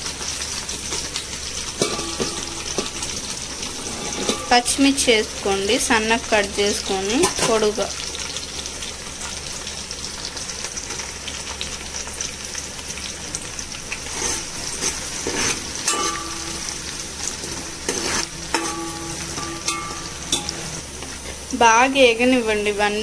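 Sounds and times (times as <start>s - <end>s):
onions sizzling in oil: 0.0s - 23.0s
metal spoon scraping pot: 1.8s - 4.8s, 14.1s - 20.8s.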